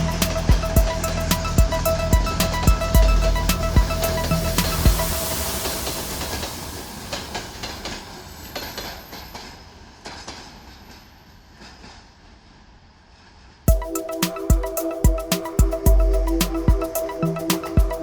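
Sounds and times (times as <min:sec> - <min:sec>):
train rumbling past: 0:03.8 - 0:13.6.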